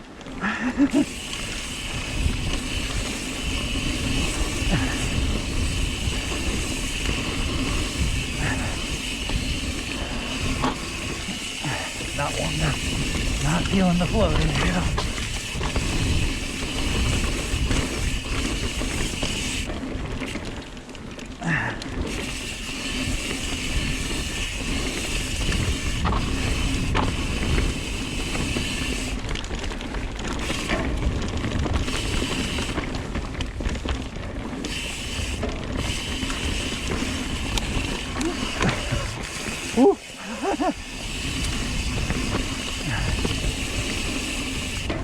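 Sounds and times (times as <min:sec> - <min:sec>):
bicycle freehub ratcheting: 0:00.4 - 0:20.6, 0:21.4 - 0:45.0
wind on camera: 0:01.1 - 0:20.3.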